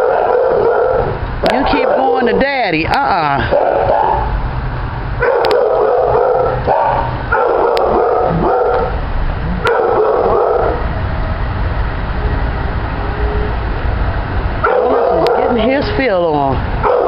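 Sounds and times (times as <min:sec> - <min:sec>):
dog barking: 0:00.0 - 0:02.4, 0:03.4 - 0:04.4, 0:05.2 - 0:09.0, 0:09.6 - 0:10.8, 0:14.6 - 0:15.7, 0:16.8 - 0:17.0
steady low hum: 0:00.0 - 0:17.0.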